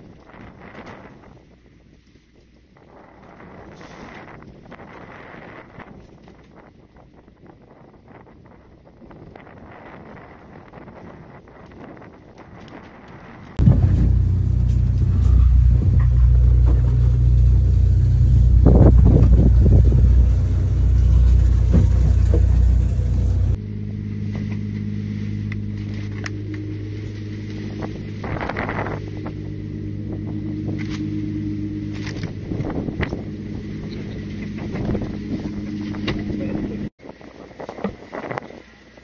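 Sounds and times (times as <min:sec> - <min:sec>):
boat engine low rumble: 0:00.0 - 0:39.0
higher engine hum: 0:13.6 - 0:36.9.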